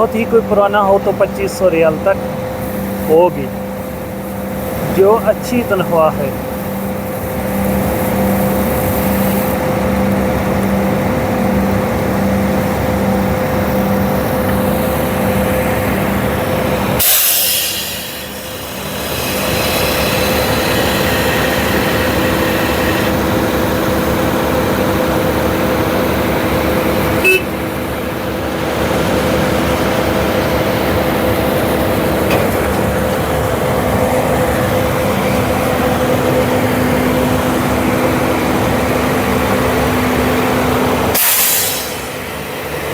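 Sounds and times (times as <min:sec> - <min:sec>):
diesel machinery running: 0:00.0 - 0:42.9
short loud hiss: 0:41.2 - 0:42.2.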